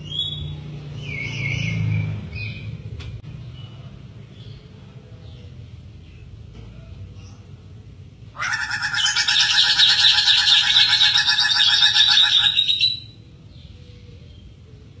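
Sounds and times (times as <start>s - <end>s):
bird rattling call: 8.4s - 13.0s.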